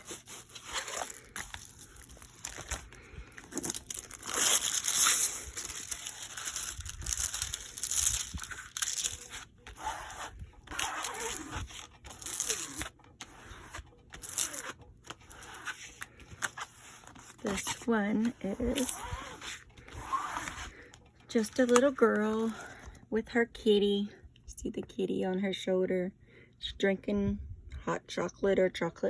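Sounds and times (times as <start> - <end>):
canvas crinkling and rustling: 0.0 - 21.0.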